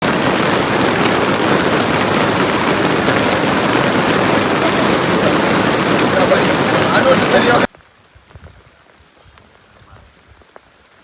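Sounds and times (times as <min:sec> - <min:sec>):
heavy rain falling: 0:00.0 - 0:07.9.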